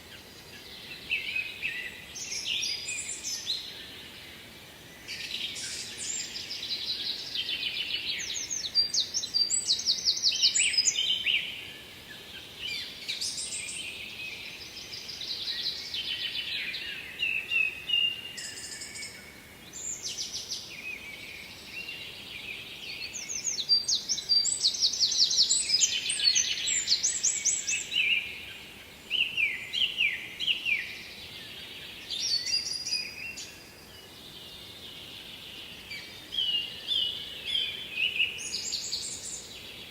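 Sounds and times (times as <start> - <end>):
faint background hiss: 0.0 - 39.9
songbirds singing: 0.0 - 39.9.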